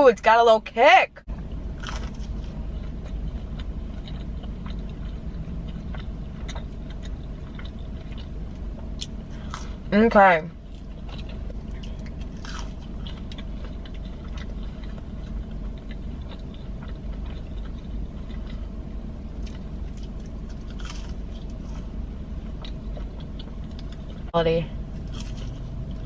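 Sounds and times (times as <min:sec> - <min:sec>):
low background hum: 0:00.0 - 0:26.0
person chewing food: 0:01.8 - 0:09.9, 0:10.6 - 0:24.3, 0:25.0 - 0:26.0
crisp crunches: 0:19.5 - 0:21.9.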